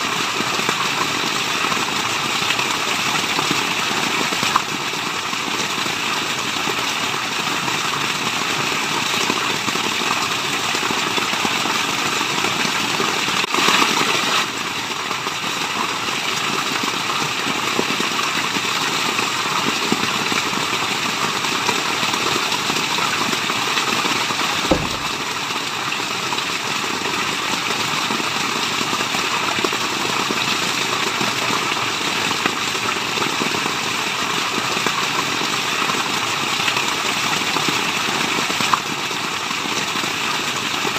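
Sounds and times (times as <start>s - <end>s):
low thump: 24.6s - 25.4s.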